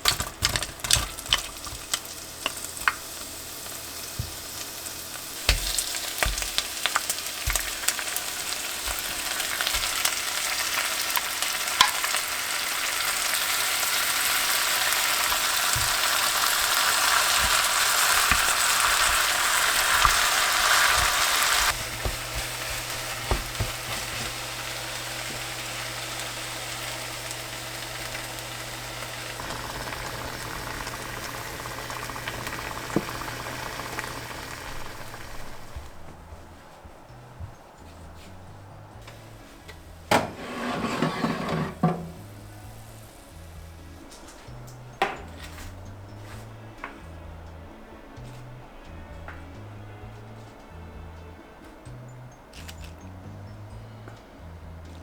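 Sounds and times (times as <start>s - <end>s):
food sizzling in a pan: 0.0s - 36.0s
utensils clicking and knocking: 5.2s - 12.2s.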